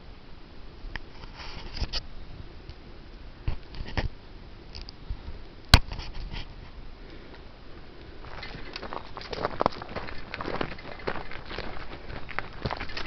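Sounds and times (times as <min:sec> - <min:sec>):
rustling: 0:04.8 - 0:13.0
footsteps: 0:08.2 - 0:13.0.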